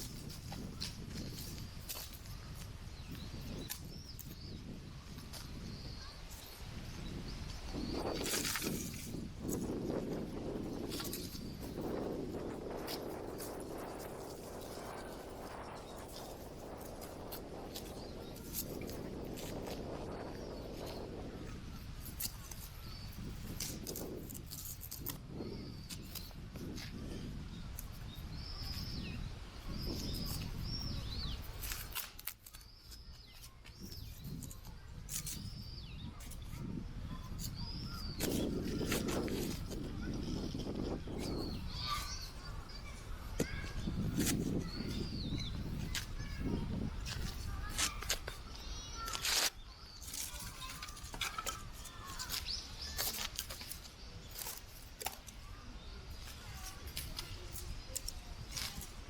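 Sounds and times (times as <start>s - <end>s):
low wind rumble: 0.0s - 31.9s, 33.8s - 49.4s
bird chirps: 41.2s - 53.6s.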